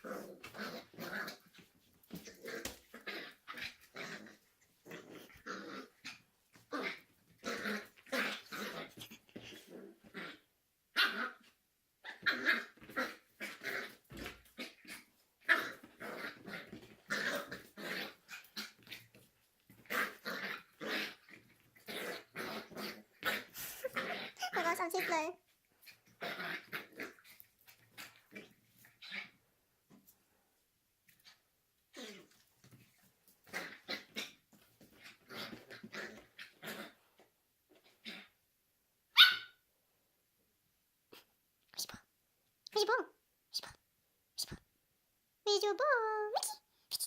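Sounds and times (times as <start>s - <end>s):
puppy growling and barking: 0.0s - 29.5s, 33.4s - 38.4s, 39.2s - 39.6s.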